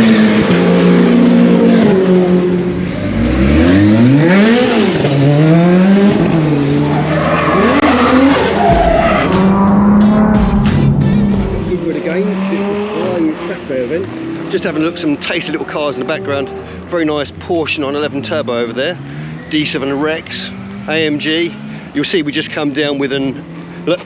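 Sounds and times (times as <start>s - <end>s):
car engine revving hard: 0.0s - 14.6s.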